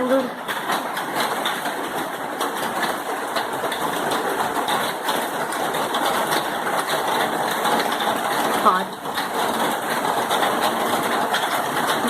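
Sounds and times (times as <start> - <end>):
heavy rain pattering: 0.0 - 12.0.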